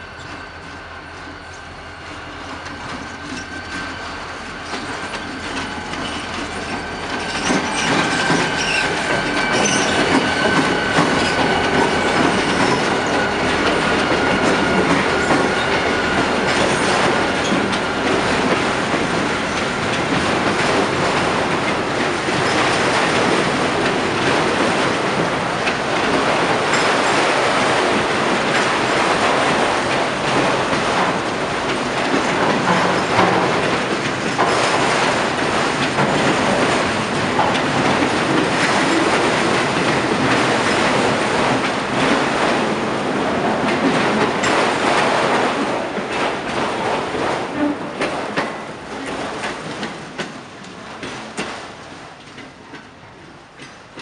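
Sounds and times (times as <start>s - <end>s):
high steady wheel squeal: 0.0s - 18.1s
freight train passing: 0.0s - 54.0s
train wheel clatter: 0.0s - 54.0s.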